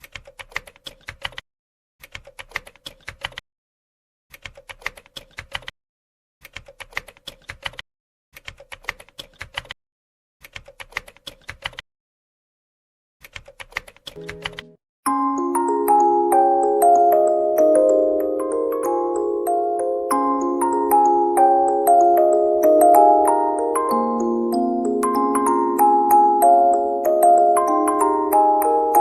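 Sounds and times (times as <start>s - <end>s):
phone keyboard clicks: 13.2s - 14.7s
sustained musical note: 14.2s - 16.4s.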